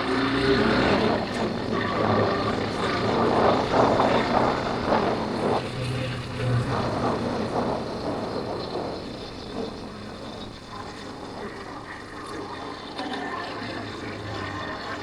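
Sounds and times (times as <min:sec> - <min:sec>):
motorcycle engine running: 0:00.0 - 0:11.6
wind buffeting microphone: 0:00.0 - 0:15.0.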